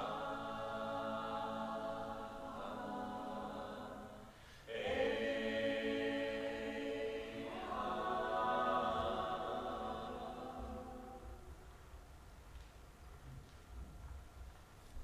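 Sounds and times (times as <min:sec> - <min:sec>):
choir singing held chords: 0:00.0 - 0:11.7.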